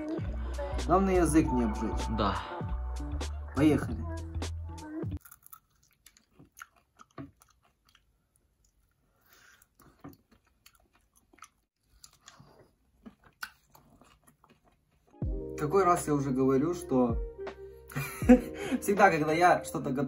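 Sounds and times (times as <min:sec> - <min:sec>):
crunchy chewing: 0:05.2 - 0:15.2.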